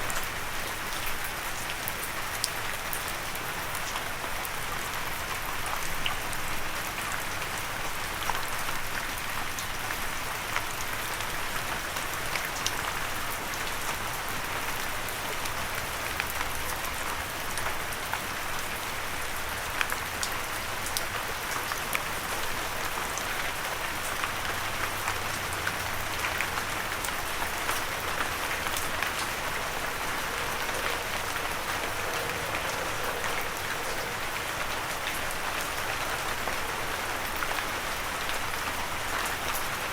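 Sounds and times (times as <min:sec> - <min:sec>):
gentle rain: 0:00.0 - 0:39.9
raindrop ticks: 0:24.0 - 0:39.8.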